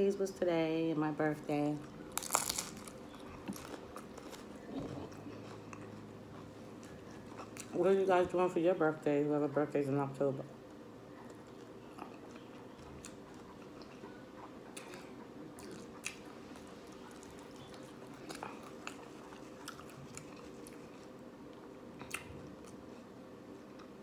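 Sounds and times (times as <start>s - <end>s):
faint steady hum: 0.0s - 24.0s
taco crunching: 1.8s - 7.8s, 11.2s - 24.0s.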